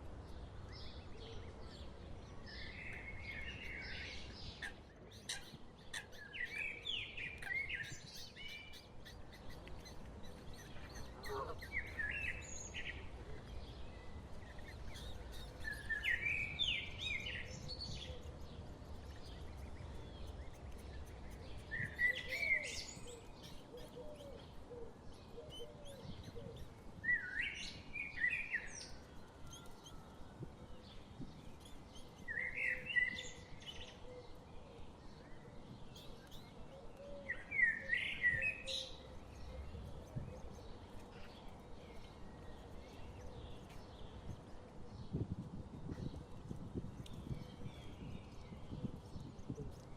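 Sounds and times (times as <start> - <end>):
faint background noise: 0.0 - 49.9
small bird chirping: 4.6 - 12.8, 13.6 - 30.0.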